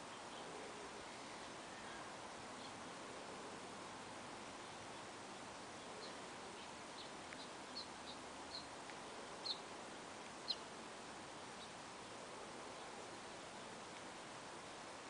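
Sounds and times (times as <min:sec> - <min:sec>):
bird chirping faintly: 0:00.0 - 0:03.6, 0:04.4 - 0:10.8
steady hiss: 0:00.0 - 0:15.0.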